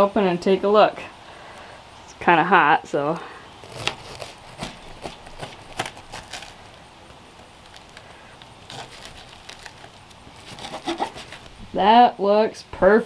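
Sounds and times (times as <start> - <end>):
knife crunching through crisp crust: 3.6 - 11.6.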